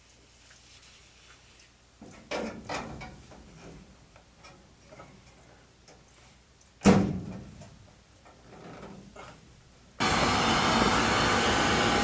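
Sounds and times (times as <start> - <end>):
loud steady rushing noise: 10.0 - 12.0.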